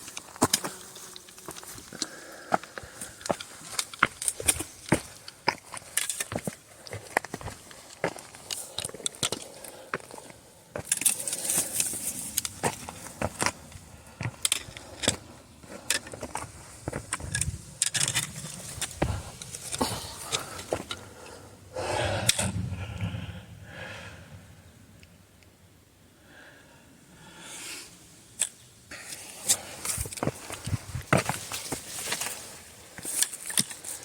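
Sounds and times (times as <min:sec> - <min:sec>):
footsteps on rocky trail: 0:00.0 - 0:21.4, 0:29.4 - 0:34.0.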